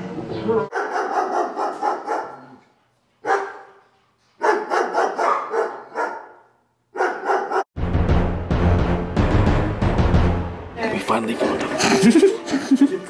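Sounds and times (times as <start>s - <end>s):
stifled laughter in bursts: 11.7s - 13.0s.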